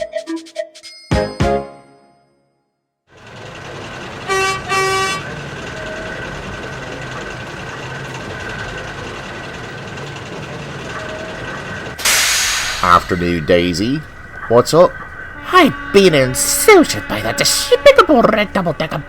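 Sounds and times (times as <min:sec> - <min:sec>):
engine rumble: 0:03.1 - 0:19.0
horn tooting: 0:03.4 - 0:08.2, 0:13.0 - 0:19.0.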